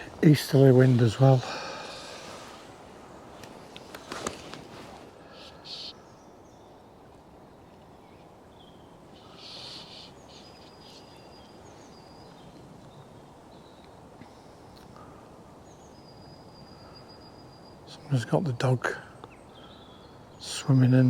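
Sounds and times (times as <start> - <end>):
gusty wind: 0.0 - 17.9
brief rustles: 3.4 - 5.1.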